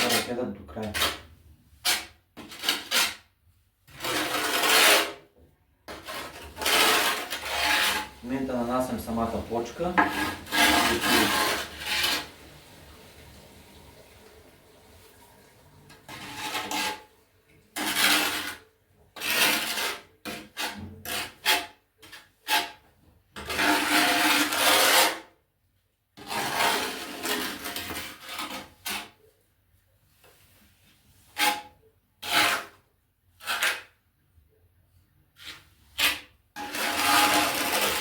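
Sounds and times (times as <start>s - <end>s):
trowel scraping tile adhesive: 0.0s - 12.4s, 16.0s - 25.4s, 26.2s - 29.3s, 31.1s - 34.0s, 35.3s - 38.0s.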